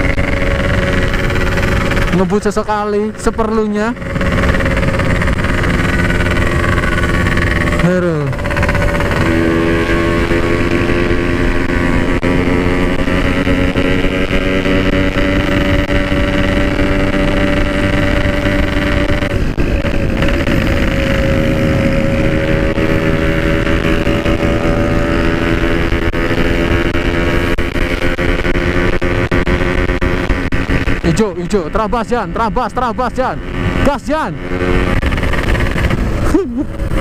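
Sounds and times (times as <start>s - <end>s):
two-stroke motorcycle idling: 0.0s - 9.4s.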